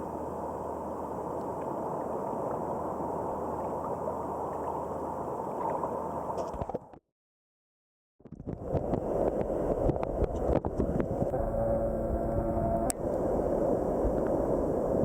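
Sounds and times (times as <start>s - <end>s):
wind noise: 8.3s - 15.0s
rushing surf water: 12.9s - 15.0s.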